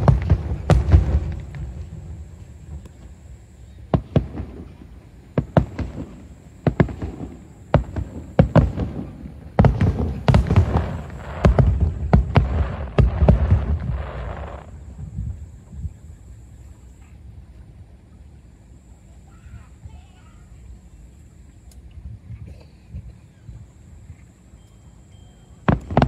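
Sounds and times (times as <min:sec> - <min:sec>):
fireworks bursting: 0:00.0 - 0:17.0, 0:25.5 - 0:26.0.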